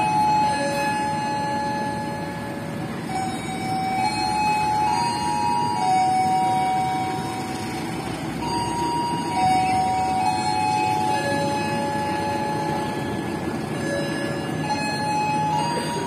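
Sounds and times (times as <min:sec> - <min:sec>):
train carriages rumbling past: 0:00.0 - 0:16.0
train wheel squeal: 0:00.0 - 0:16.0.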